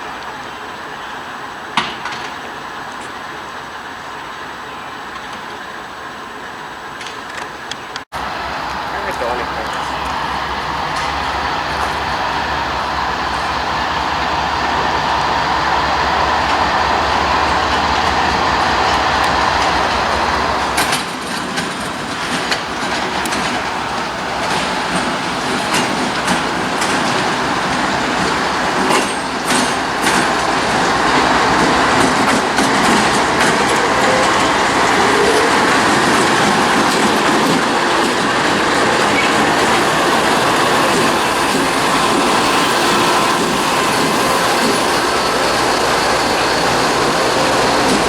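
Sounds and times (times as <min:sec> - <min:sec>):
freight train cars rumbling: 0:00.0 - 0:48.0
wheels clacking over rail joints: 0:00.0 - 0:48.0.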